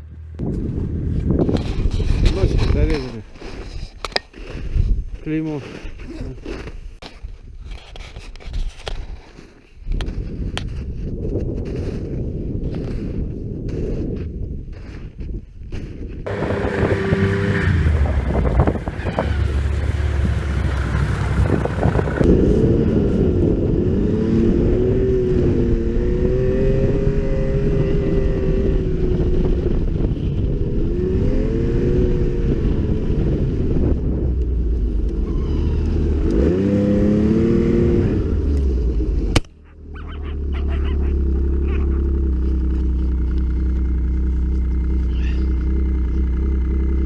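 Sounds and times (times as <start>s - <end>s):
snowmobile engine revving: 16.3s - 34.2s, 34.8s - 47.0s.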